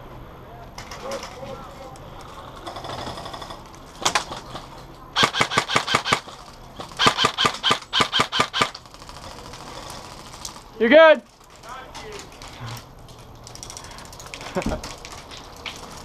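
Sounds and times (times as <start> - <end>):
airsoft gun shots with ringing ping: 7.0 - 8.7.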